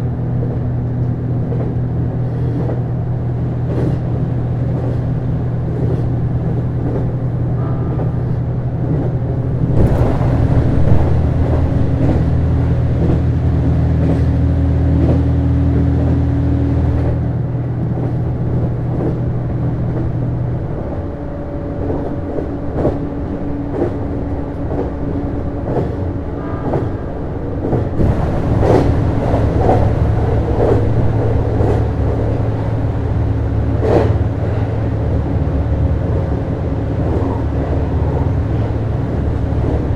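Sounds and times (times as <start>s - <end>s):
diesel engine hum: 0.0s - 39.9s
track rumble: 0.0s - 39.9s
wheels clicking on rails: 21.8s - 39.9s.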